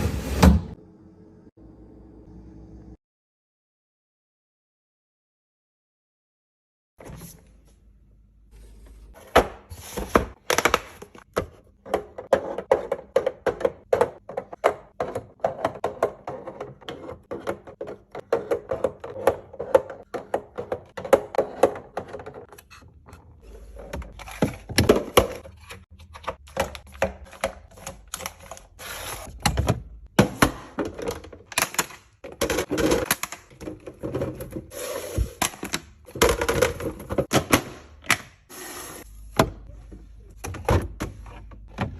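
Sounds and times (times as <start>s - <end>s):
plastic containers clicking and knocking: 10.1s - 22.6s, 23.8s - 34.7s, 35.4s - 38.3s.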